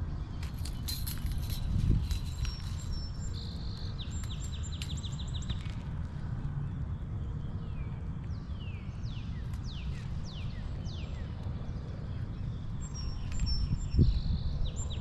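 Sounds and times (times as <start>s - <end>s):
wind on microphone: 0.0s - 5.0s, 11.6s - 15.0s.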